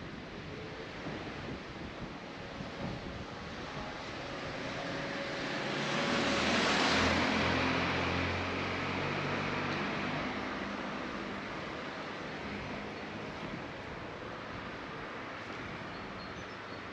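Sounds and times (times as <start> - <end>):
car passing by: 3.4 - 15.9.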